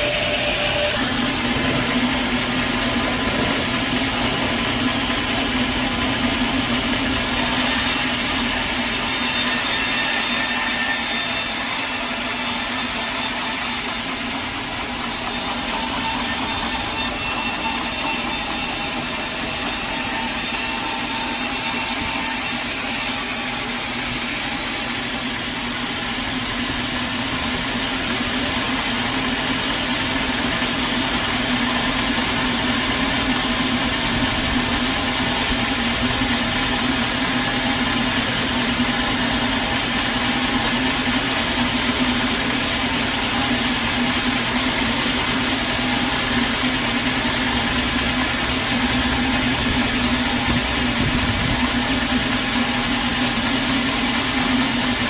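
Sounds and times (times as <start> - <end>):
saw blade cutting wood: 0.0 - 55.0
sawmill engine humming: 0.0 - 55.0.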